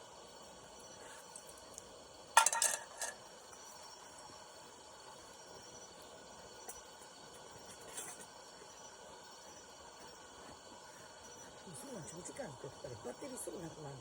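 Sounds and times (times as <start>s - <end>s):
faint steady hiss: 0.0s - 14.0s
kitchenware clinking: 2.4s - 3.2s.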